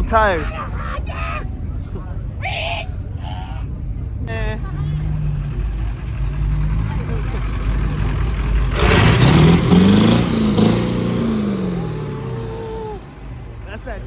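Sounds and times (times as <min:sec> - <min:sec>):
diesel engine revving: 0:03.8 - 0:14.0.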